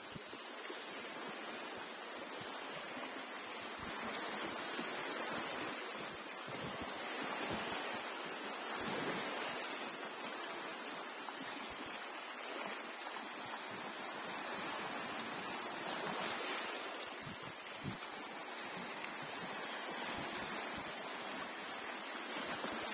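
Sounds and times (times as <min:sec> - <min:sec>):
sea surf washing onto shore: 0:02.9 - 0:22.9.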